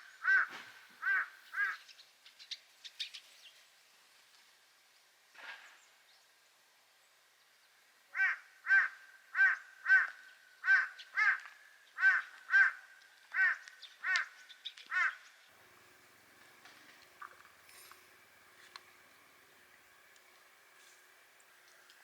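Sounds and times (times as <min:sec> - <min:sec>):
bird calling harshly: 0:00.0 - 0:01.9.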